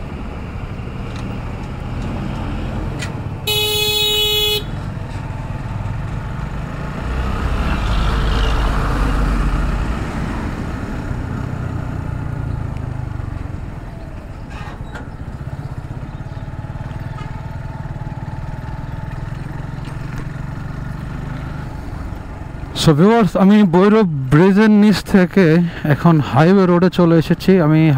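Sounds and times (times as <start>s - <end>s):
traffic rushing: 0.0s - 27.9s
motorcycle engine running: 15.1s - 22.8s.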